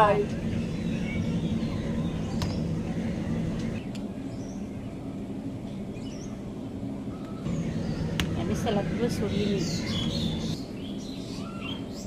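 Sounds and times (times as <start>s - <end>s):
low background hum: 0.0s - 12.0s
bird chirps: 7.1s - 12.0s.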